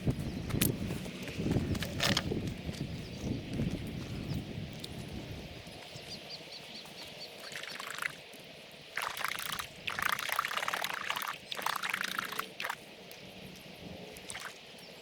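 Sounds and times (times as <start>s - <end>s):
water splashing: 7.4s - 8.2s, 9.0s - 12.8s, 14.2s - 14.6s.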